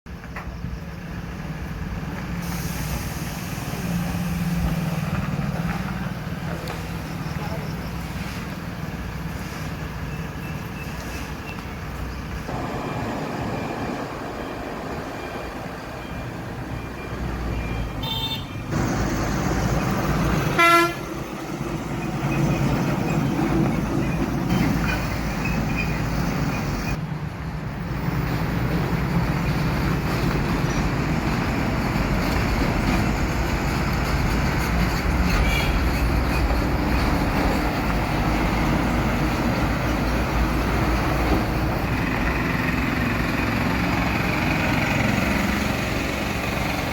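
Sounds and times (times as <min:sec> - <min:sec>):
road noise: 0:00.1 - 0:46.9
truck engine running: 0:03.6 - 0:17.8, 0:18.7 - 0:27.0, 0:35.9 - 0:46.9
truck horn toots: 0:18.0 - 0:18.8, 0:20.4 - 0:21.2.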